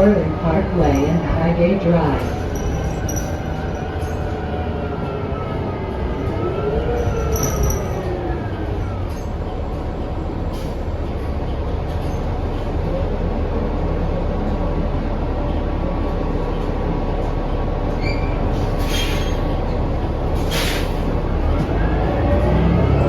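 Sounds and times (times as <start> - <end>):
bus drivetrain and road noise: 0.0 - 23.0
short air hisses: 20.5 - 21.0.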